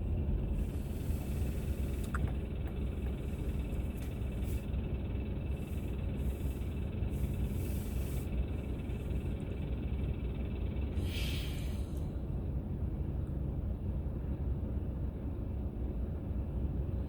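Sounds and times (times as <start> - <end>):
car road and engine rumble: 0.0 - 17.0
brief hiss: 11.0 - 12.0.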